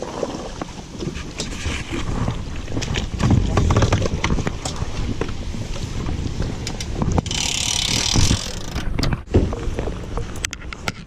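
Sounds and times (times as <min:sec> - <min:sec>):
wind buffeting microphone: 0:00.0 - 0:11.0
knocks and clatter of gear: 0:03.1 - 0:05.4.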